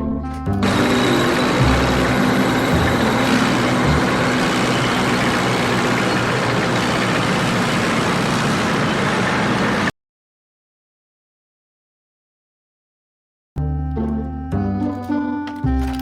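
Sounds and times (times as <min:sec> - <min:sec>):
loud vehicle engine noise: 0:00.5 - 0:09.9.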